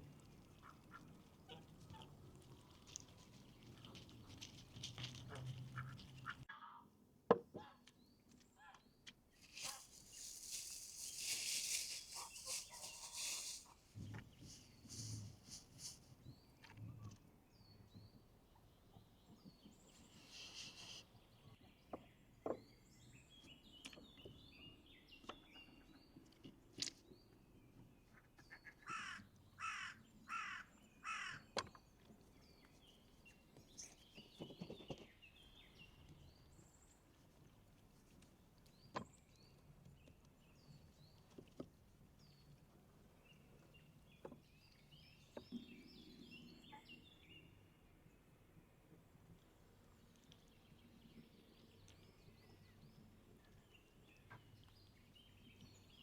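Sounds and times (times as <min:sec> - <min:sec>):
small birds chirping: 0:00.0 - 0:06.5, 0:07.9 - 0:56.0.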